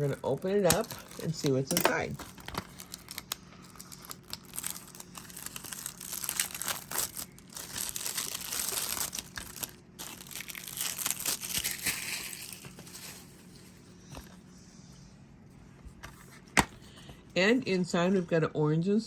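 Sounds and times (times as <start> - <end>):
plastic wrapping tearing and crinkling: 0.0 - 13.6.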